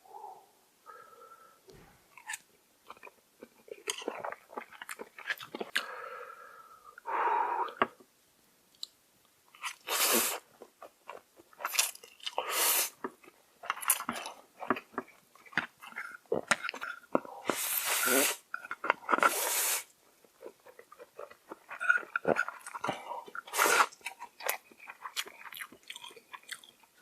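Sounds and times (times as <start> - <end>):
person chewing food: 2.1 - 6.0, 8.8 - 27.0
hissing mouth noises: 9.8 - 10.5, 12.4 - 13.0, 17.4 - 18.5, 19.2 - 19.9, 23.4 - 24.0.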